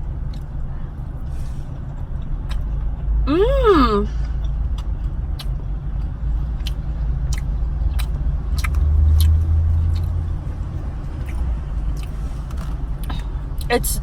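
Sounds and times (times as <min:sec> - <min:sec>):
low vehicle rumble: 0:00.0 - 0:14.0
person chewing: 0:04.8 - 0:10.3, 0:11.2 - 0:13.7.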